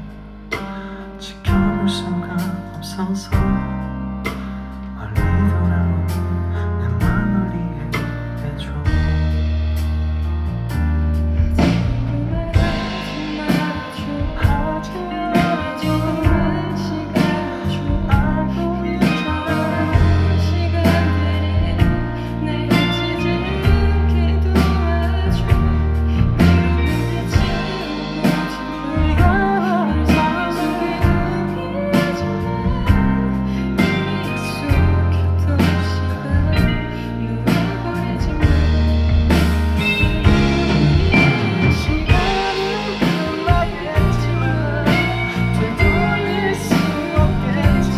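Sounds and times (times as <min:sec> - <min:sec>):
bass line: 0:00.0 - 0:47.9
guitars: 0:00.0 - 0:47.9
drum beat: 0:08.9 - 0:35.0, 0:37.5 - 0:47.9
person singing: 0:11.4 - 0:47.9.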